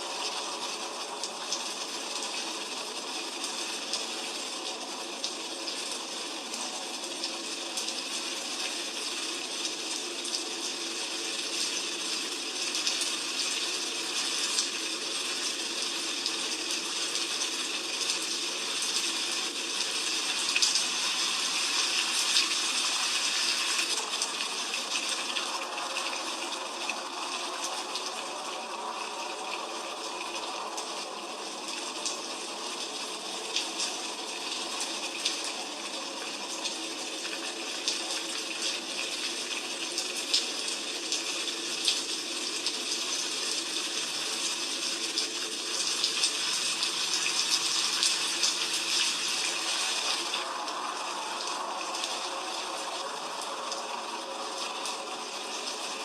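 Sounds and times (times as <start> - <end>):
heavy rain falling: 12.2 - 56.0.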